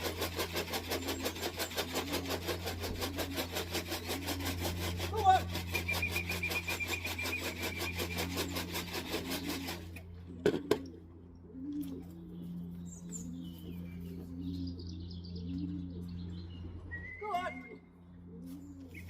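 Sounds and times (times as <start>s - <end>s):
pigeons cooing: 0.0s - 19.0s
bird chirps: 5.7s - 8.6s, 11.8s - 19.0s.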